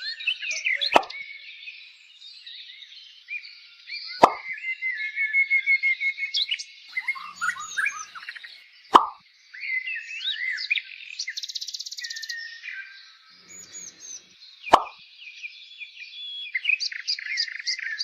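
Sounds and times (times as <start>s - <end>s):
birds chirping and singing: 0.0s - 18.0s
sharp plop: 0.9s - 1.2s, 4.2s - 4.5s, 8.9s - 9.2s, 14.7s - 15.0s.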